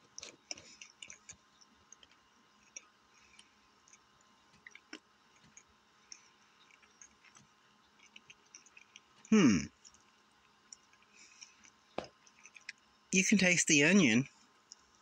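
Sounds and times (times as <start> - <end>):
person chewing: 0.0 - 12.9.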